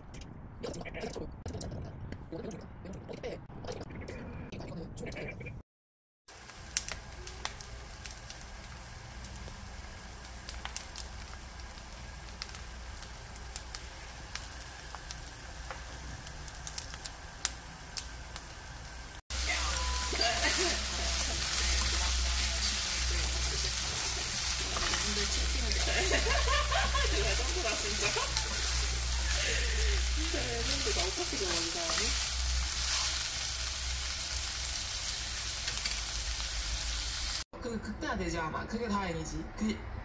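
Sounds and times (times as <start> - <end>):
small crackles and pops: 6.3 - 19.2
eggplant frying in oil: 6.3 - 37.5.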